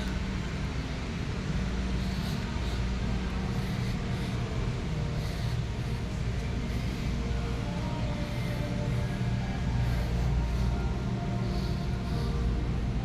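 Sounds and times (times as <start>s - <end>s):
store interior ambience: 0.0s - 13.0s.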